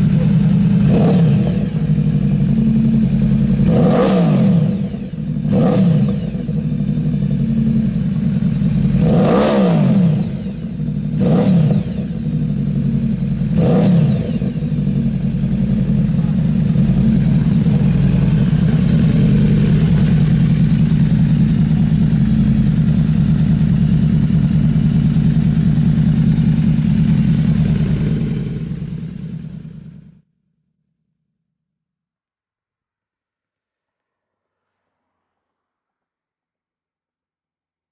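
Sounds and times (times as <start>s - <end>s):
motorcycle engine running hard: 0.0s - 30.2s.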